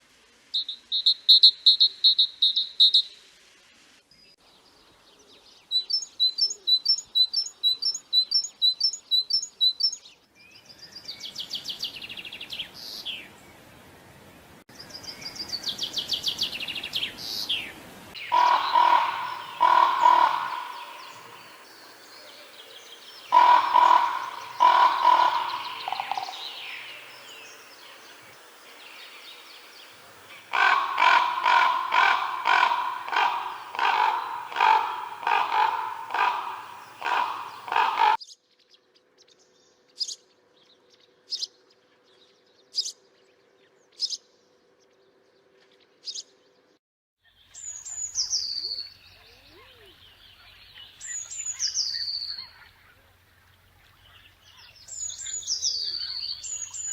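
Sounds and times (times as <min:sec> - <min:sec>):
falling whistled bird calls: 0:18.2 - 0:27.6, 0:30.4 - 0:38.2
harsh bird calls: 0:18.2 - 0:38.2.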